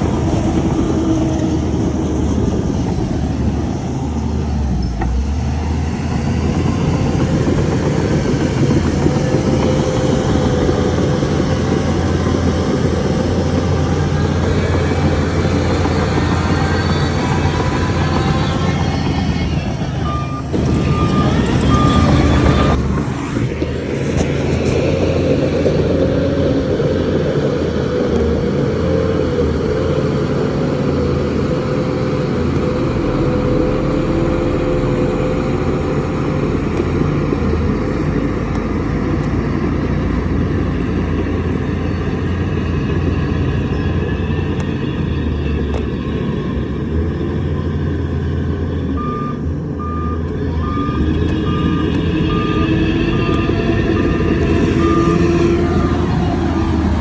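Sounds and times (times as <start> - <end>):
diesel engine running under load: 0.0 - 57.0
reversing alarm beeping: 15.8 - 22.8, 32.6 - 36.8, 48.9 - 56.9.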